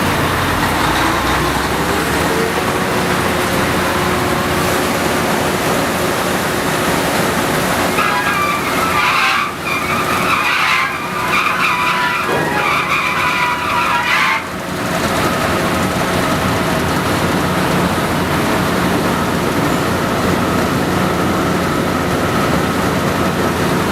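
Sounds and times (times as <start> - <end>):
drilling rig machinery: 0.0 - 23.9
high-pitched metal squeal: 7.8 - 14.6.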